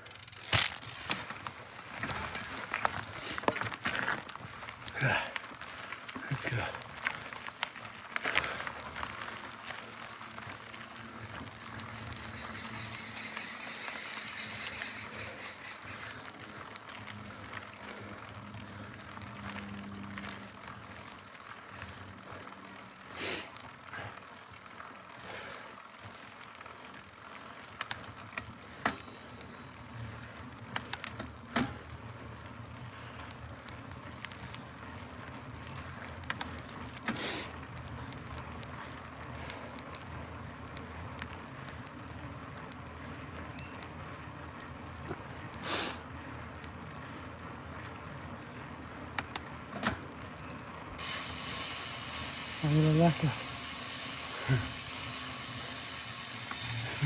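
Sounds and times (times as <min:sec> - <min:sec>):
rapid freewheel ticking: 0:00.0 - 0:00.6, 0:10.2 - 0:16.8, 0:51.0 - 0:57.0
bike tyre and drivetrain noise: 0:00.0 - 0:57.0.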